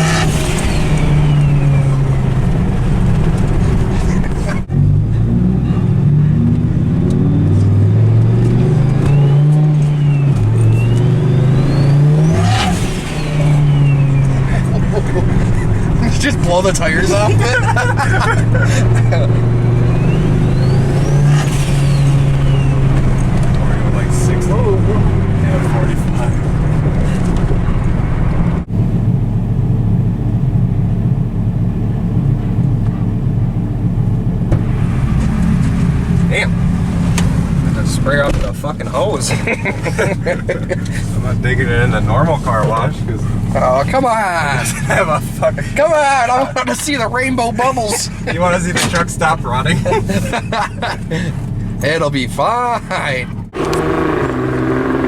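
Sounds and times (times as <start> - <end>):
throttle lift rush: 0.0 - 28.7, 53.3 - 55.0
engine rumbling: 0.0 - 55.0
engine pulling under load: 53.4 - 55.0
turbo whine: 53.6 - 55.0.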